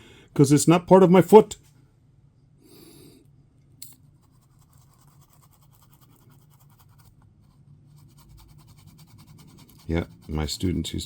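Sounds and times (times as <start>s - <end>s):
brush scratching in mold: 4.2s - 11.0s.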